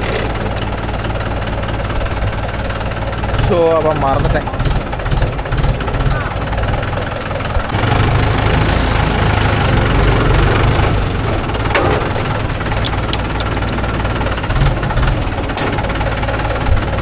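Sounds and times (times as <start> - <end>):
diesel engine throbbing: 0.0 - 17.0.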